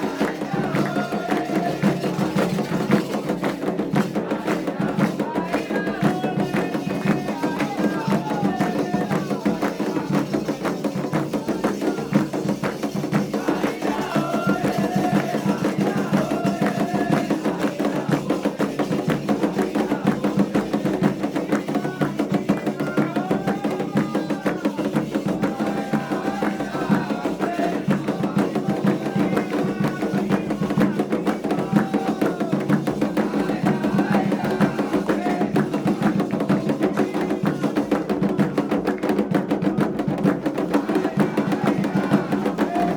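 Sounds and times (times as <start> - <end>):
hand drums playing fast: 0.0 - 42.9
voices singing a melody: 0.0 - 42.9.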